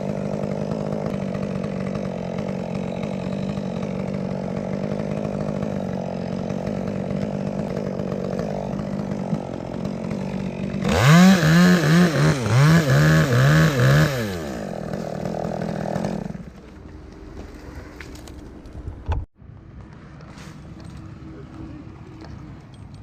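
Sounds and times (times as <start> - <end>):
chainsaw idling and revving: 0.0 - 18.4.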